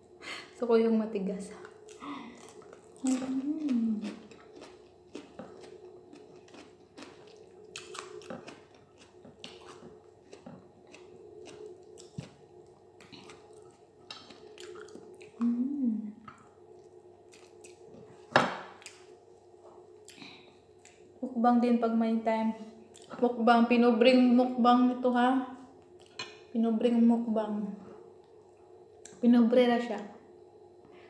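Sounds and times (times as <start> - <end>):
steady low hum: 0.0 - 31.0
person chewing food: 1.6 - 15.6, 16.2 - 21.1, 22.8 - 23.1, 25.8 - 26.4
person humming: 3.0 - 4.2, 15.4 - 16.2.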